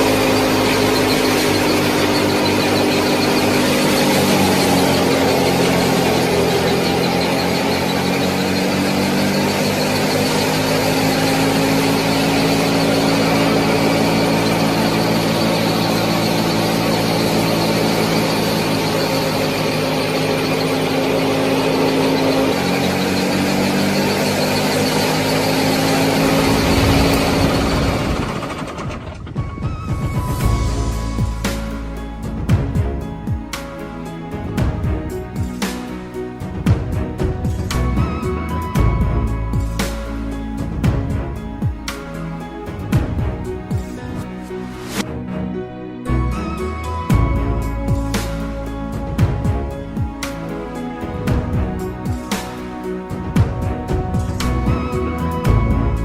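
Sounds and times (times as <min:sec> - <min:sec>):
small electric motor whining: 0:00.0 - 0:32.3.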